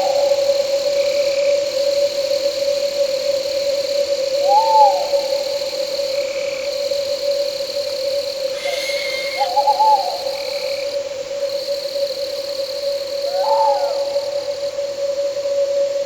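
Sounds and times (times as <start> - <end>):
crickets and insects trilling: 0.0 - 16.0
owl hooting: 4.4 - 5.7, 8.5 - 11.2, 12.8 - 14.8.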